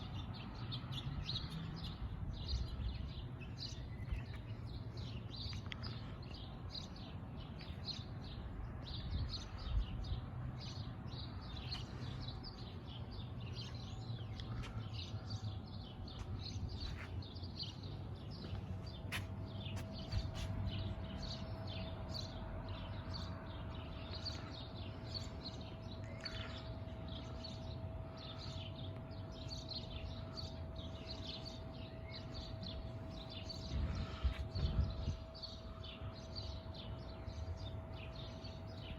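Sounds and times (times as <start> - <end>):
small birds chirping: 0.0 - 38.9
faint steady hum: 19.4 - 38.9.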